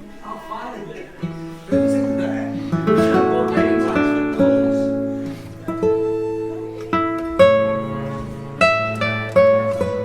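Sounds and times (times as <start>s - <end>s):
acoustic guitar plucking: 1.2s - 10.0s.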